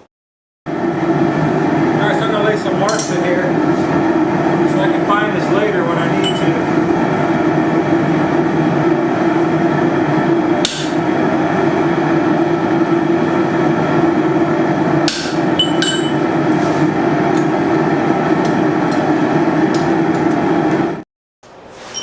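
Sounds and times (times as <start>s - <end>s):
hammer hitting hot steel: 10.6s - 11.0s, 15.0s - 16.1s.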